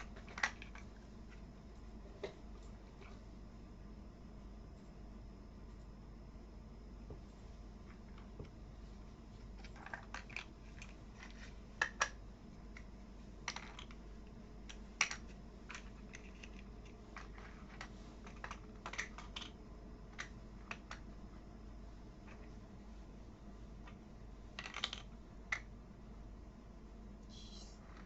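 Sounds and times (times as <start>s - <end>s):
plastic toy pieces clicking: 14.7s - 21.0s, 24.6s - 25.7s.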